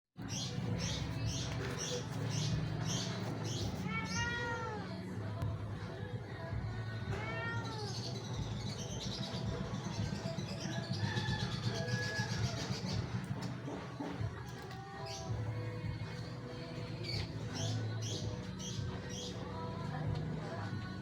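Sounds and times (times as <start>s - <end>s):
cat meowing: 3.6s - 4.9s, 7.1s - 8.1s.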